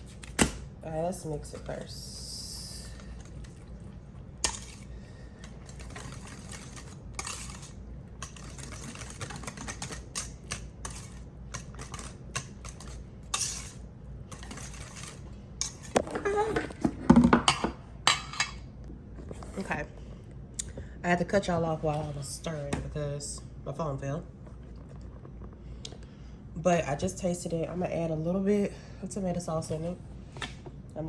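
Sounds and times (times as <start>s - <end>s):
utensil scraping a bowl: 4.4s - 16.8s.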